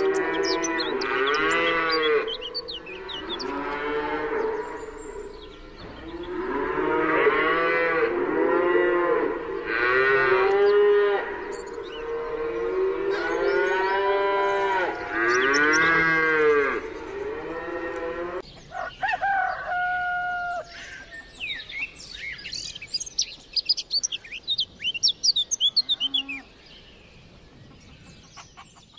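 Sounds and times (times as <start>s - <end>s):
high bird chirps: 0.0s - 6.7s, 9.8s - 17.8s
cattle mooing: 0.0s - 18.4s.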